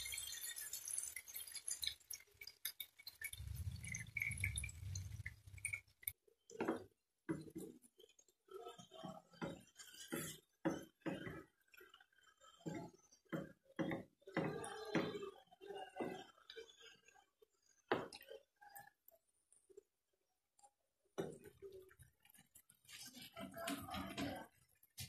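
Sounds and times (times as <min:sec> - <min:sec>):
liquid pouring into frying pan: 0:00.0 - 0:06.2
spatula scraping a pan: 0:08.9 - 0:13.6.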